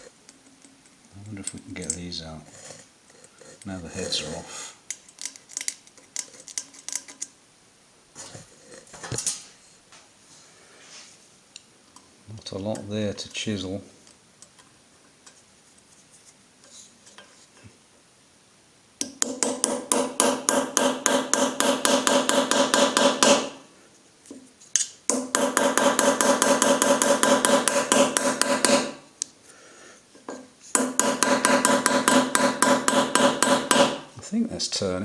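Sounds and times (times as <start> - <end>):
hammer tapping chisel on metal: 19.0 - 23.6, 24.8 - 29.0, 30.2 - 34.1.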